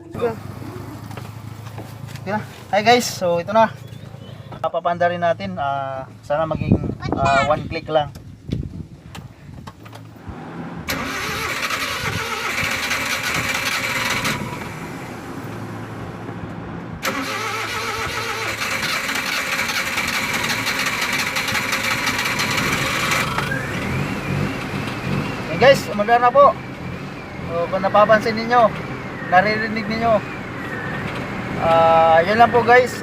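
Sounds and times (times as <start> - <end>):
engine cranking and starting: 9.8 - 15.7, 17.0 - 25.7.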